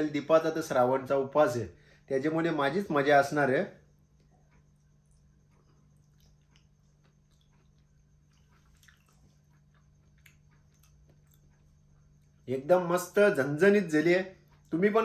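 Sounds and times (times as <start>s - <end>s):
low room hum: 0.0s - 15.0s
man chewing food: 3.9s - 12.5s.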